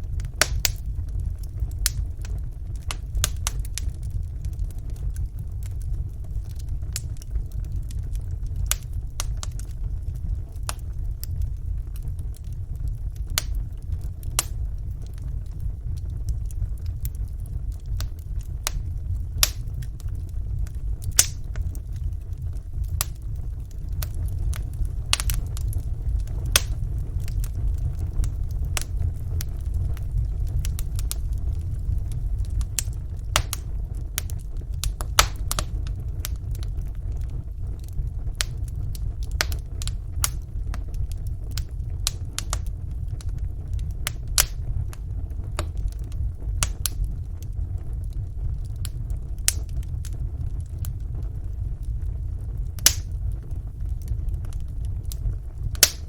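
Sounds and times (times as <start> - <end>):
fire crackling and popping: 0.0 - 56.0
fire rumbling: 0.0 - 56.0.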